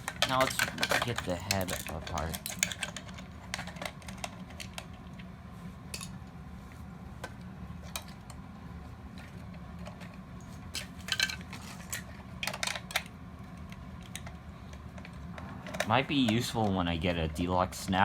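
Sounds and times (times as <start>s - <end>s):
plastic toy parts clicking: 0.0s - 4.9s, 10.8s - 13.1s.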